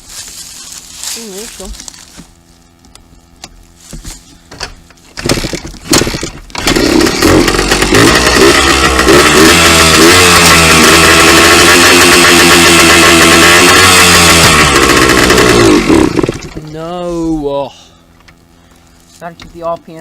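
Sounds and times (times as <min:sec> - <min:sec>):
two-stroke dirt bike engine revving: 0:05.2 - 0:16.8.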